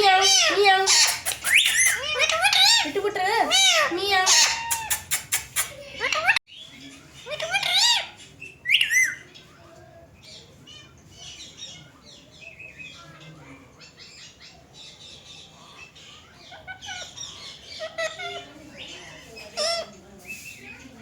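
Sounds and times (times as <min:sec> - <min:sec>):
parakeets squawking: 0:00.0 - 0:06.4, 0:07.3 - 0:09.3, 0:13.8 - 0:20.0
parakeets chirping and chattering: 0:00.0 - 0:21.0.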